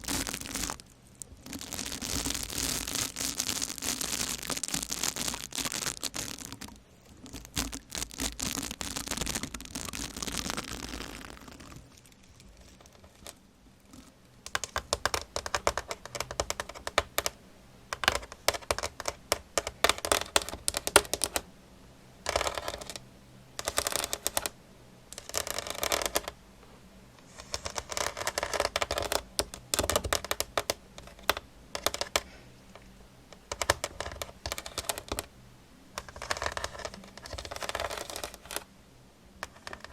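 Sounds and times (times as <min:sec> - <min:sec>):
rapid clicking and tapping: 0:00.0 - 0:17.4
soft scratchy hiss: 0:00.0 - 0:39.9.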